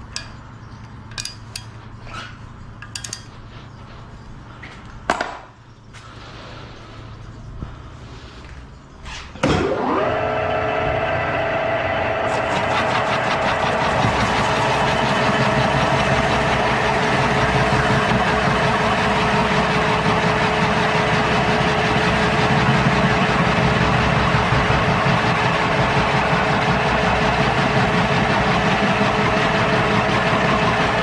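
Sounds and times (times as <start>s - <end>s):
machine motor whining: 9.4s - 31.0s.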